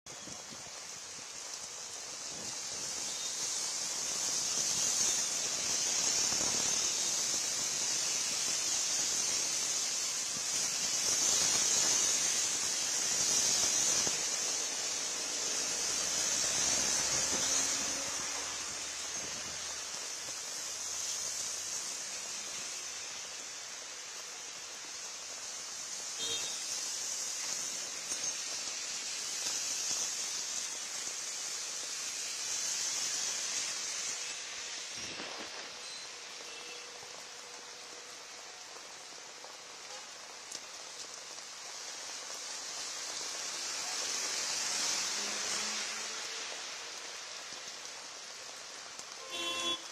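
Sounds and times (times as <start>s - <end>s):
heavy rain falling: 0.0s - 49.9s.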